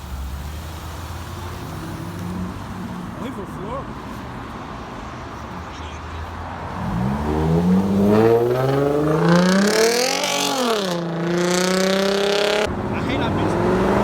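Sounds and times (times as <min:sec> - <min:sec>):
car engine accelerating: 0:06.6 - 0:14.0.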